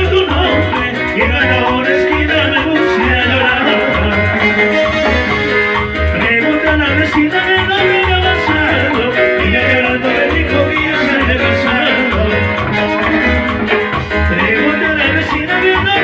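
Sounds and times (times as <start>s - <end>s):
latin dance band music: 0.0s - 16.0s.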